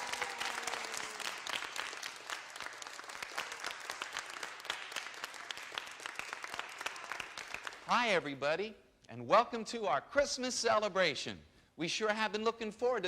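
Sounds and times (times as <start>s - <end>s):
audience clapping: 0.0s - 8.4s.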